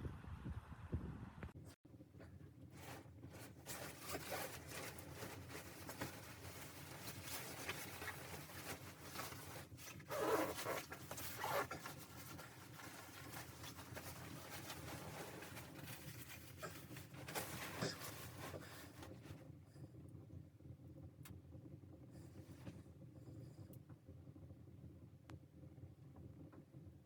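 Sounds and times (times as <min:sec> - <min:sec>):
fabric rustling and scraping: 0:02.7 - 0:19.4.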